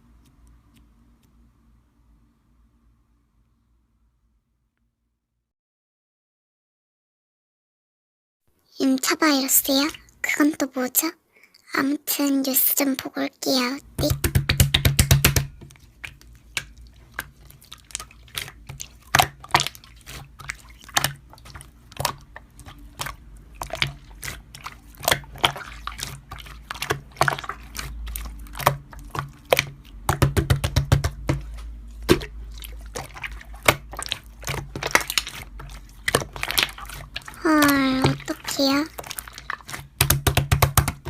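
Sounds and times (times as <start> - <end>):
slime squished by hand: 14.0 - 41.0.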